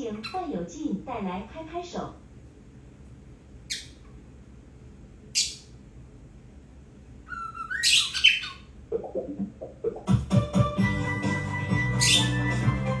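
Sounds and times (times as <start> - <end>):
bird squawking: 3.7 - 4.0, 5.4 - 5.7, 7.3 - 10.0, 11.9 - 12.6
bird whistling: 7.3 - 8.7, 11.8 - 12.8
scratchy bird calls: 12.0 - 12.4.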